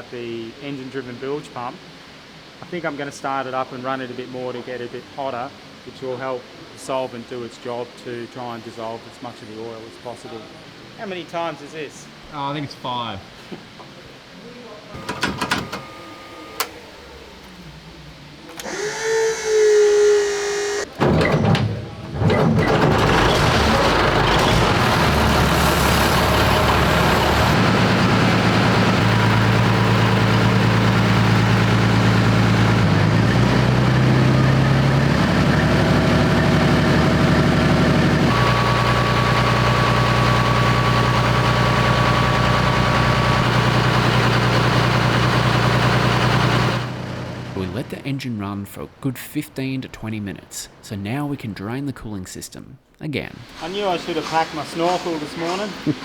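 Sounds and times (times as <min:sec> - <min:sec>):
diesel engine starting and running: 0:15.0 - 0:48.2, 0:53.4 - 0:56.0.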